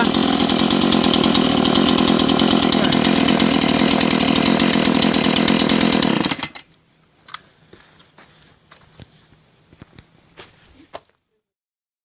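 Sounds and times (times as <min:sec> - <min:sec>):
chainsaw engine running: 0:00.0 - 0:06.7.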